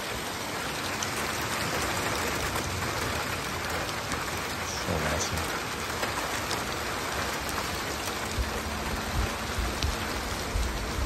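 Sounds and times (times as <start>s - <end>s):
steady rainfall: 0.0s - 11.0s
low rumbles: 7.8s - 11.0s.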